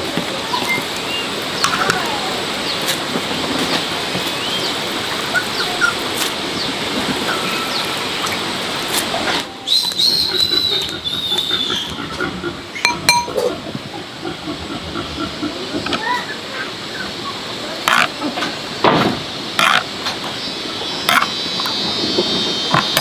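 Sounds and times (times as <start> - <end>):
steady rushing hiss: 0.0 - 23.0
small birds chirping: 0.3 - 3.0, 3.7 - 8.4, 9.6 - 14.0
held whistling bird call: 4.4 - 6.0, 9.6 - 12.0.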